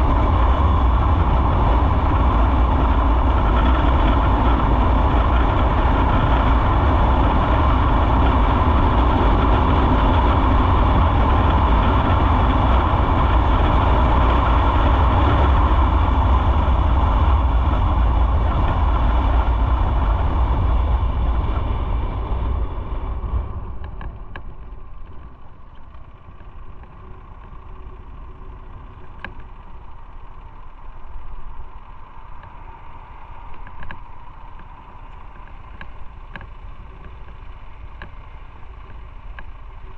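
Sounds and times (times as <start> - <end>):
motorcycle engine rumble: 0.0 - 39.9
wind noise on microphone: 0.0 - 39.9
faint clicks: 23.8 - 32.7, 33.3 - 39.8.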